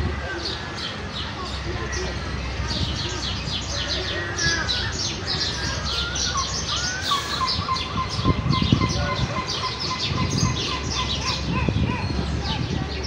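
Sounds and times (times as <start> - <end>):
sparrows chirping: 0.0 - 13.0.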